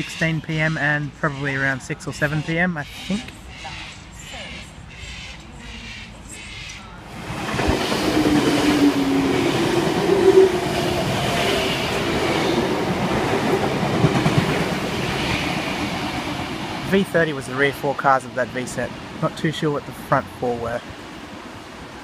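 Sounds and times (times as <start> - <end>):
train rumble: 2.8 - 22.0
electric train wheels and motors: 7.1 - 17.9.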